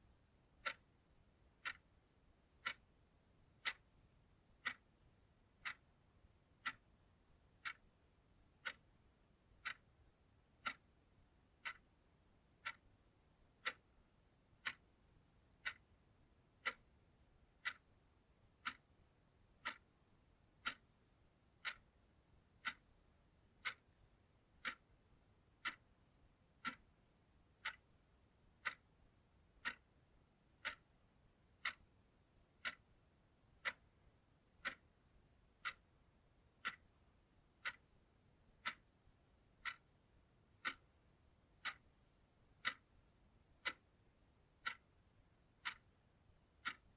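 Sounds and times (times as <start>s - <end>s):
clock ticking: 0.0s - 46.9s.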